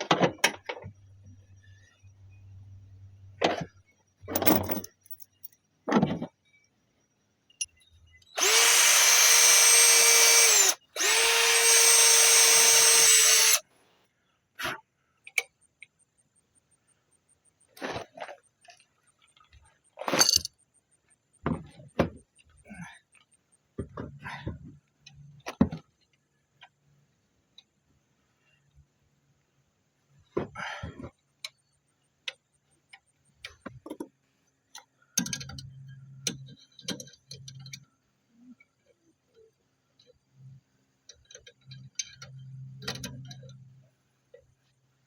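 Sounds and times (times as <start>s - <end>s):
tools knocking and clinking: 3.4s - 6.3s, 20.1s - 20.5s
power tool whirring: 8.3s - 13.6s.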